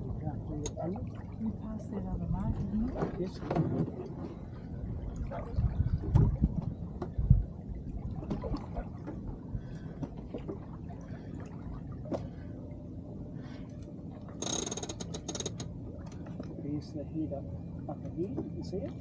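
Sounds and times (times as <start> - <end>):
low wind rumble: 0.0 - 19.0
water sloshing against hull: 0.0 - 19.0
small knocks: 14.4 - 15.7.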